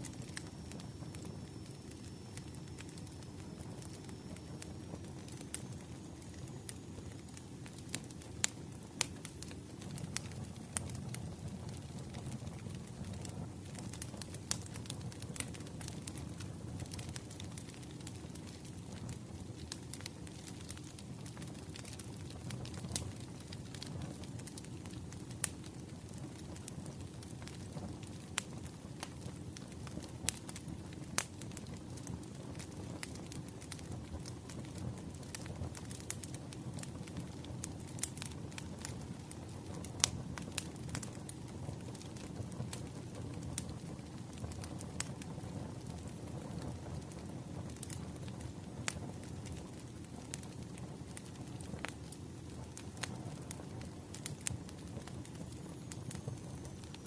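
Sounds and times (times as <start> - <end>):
pops and snaps of burning logs: 0.0 - 57.0
wood fire crackling: 0.0 - 57.0.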